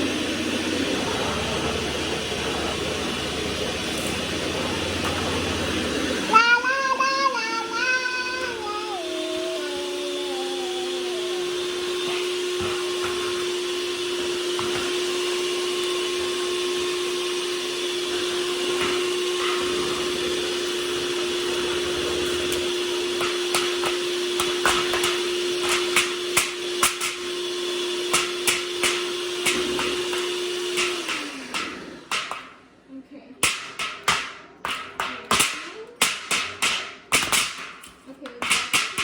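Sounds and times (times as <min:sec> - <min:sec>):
electric mixer running: 0:00.0 - 0:39.0
beaters knocking against bowl: 0:22.3 - 0:27.3, 0:33.4 - 0:39.0.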